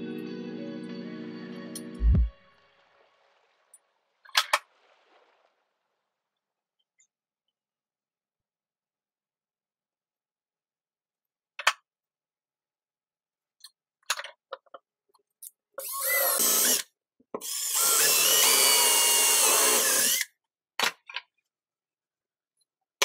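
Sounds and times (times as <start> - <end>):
power drill running: 15.8 - 16.8, 17.4 - 20.3.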